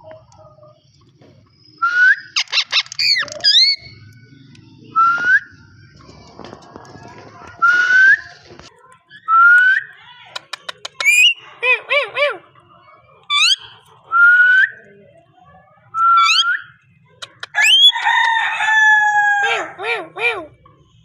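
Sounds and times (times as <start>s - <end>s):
parakeet whistling and chattering: 1.8s - 4.1s, 9.1s - 12.5s, 13.2s - 14.8s, 16.0s - 18.0s.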